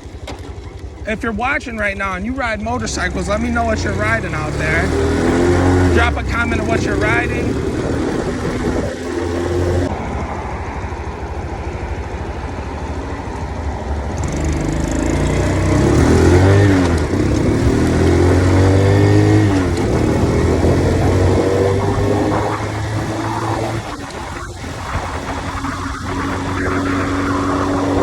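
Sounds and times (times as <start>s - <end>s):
mini motorcycle engine revving: 2.8s - 28.0s.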